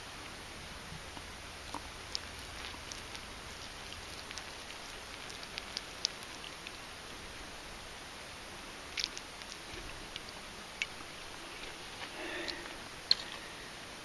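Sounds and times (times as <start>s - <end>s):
light rain hissing: 0.0s - 14.0s.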